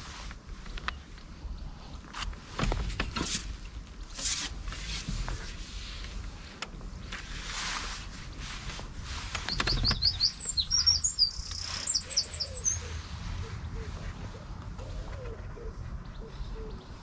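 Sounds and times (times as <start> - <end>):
songbird chirps and twitters: 9.4 - 14.2.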